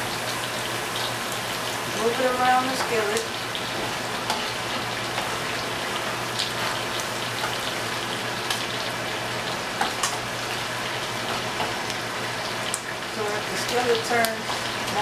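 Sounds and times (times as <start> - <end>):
food frying in butter: 0.0 - 15.0.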